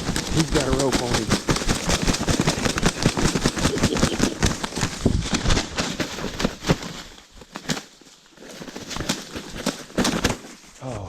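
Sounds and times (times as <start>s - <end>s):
rustling and crackling handling: 0.0s - 10.8s.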